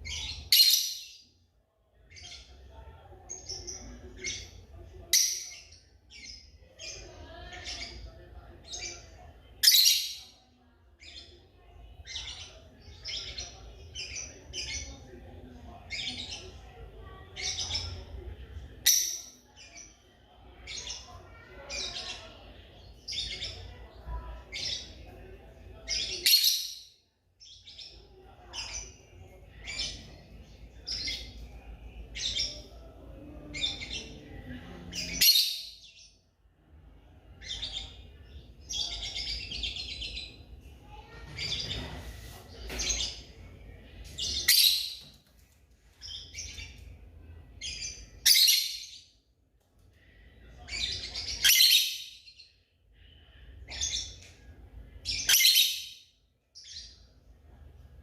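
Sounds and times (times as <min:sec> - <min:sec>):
lovebirds chirping: 0:00.0 - 0:01.4, 0:15.8 - 0:36.2, 0:37.2 - 0:45.2, 0:46.0 - 0:49.1.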